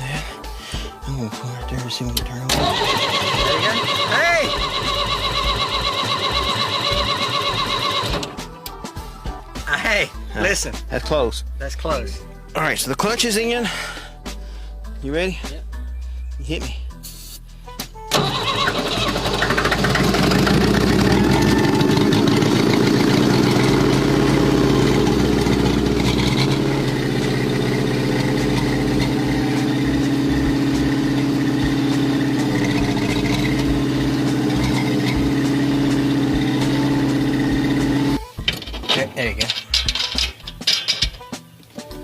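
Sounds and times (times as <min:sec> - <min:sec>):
bulldozer engine starting and running: 0:02.5 - 0:08.5, 0:18.1 - 0:38.9.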